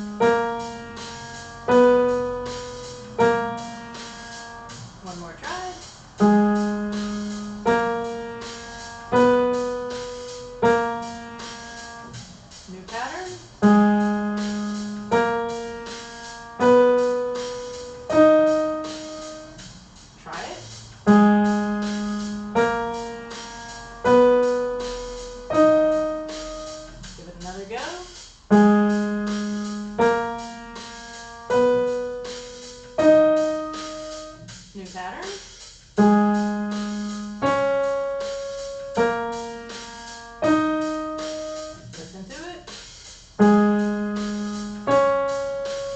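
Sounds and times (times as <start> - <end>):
piano single notes: 0.0 - 12.2, 36.0 - 41.9
piano notes ringing: 0.0 - 35.4, 36.0 - 42.8, 43.4 - 45.9.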